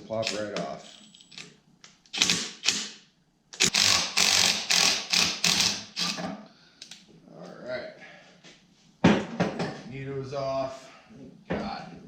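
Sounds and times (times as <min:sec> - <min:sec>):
impact wrench hammering: 0:02.1 - 0:03.0, 0:03.6 - 0:06.4.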